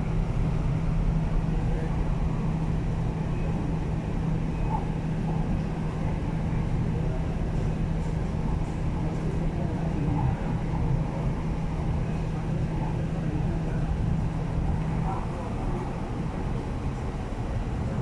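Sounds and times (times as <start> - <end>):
constant low hum: 0.0 - 18.0.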